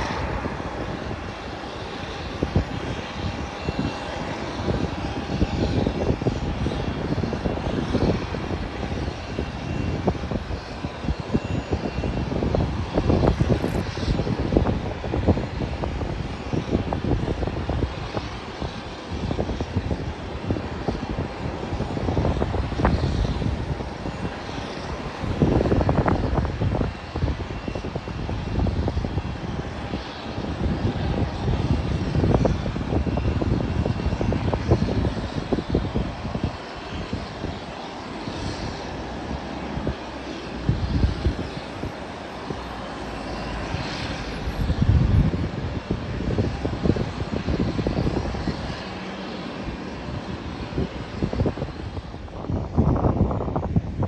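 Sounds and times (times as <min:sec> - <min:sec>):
airliner engines running: 0:00.0 - 0:54.0
wind gusting on microphone: 0:00.0 - 0:54.0.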